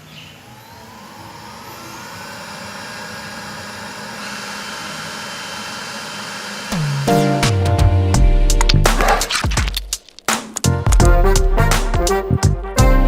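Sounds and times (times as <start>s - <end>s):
robot vacuum fan whine: 0.0s - 8.4s.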